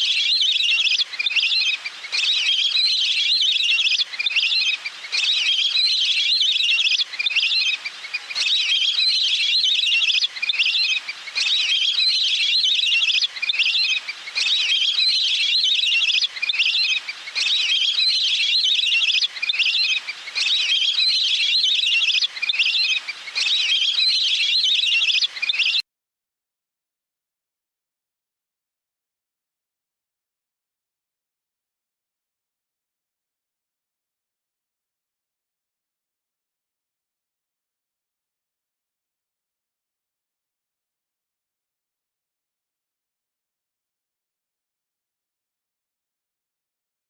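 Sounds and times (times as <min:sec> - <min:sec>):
water bird trilling: 0:00.0 - 0:25.8.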